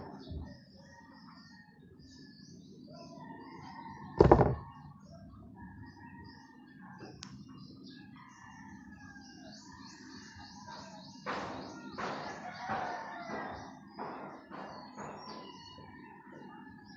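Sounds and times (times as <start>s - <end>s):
loud thump: 4.2s - 4.6s.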